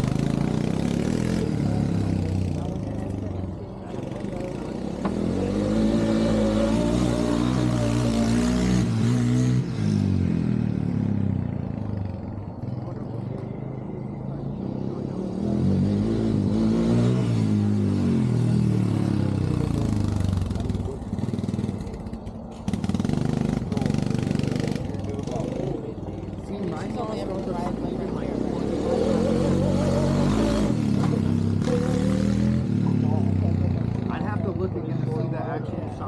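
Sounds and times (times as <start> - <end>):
car engine accelerating: 14.7 - 34.7.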